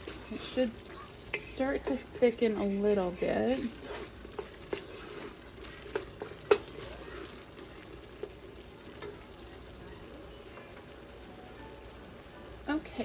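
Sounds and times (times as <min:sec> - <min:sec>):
spoon stirring and scraping: 0:00.0 - 0:10.0
vegetables sizzling in pot: 0:00.0 - 0:13.0.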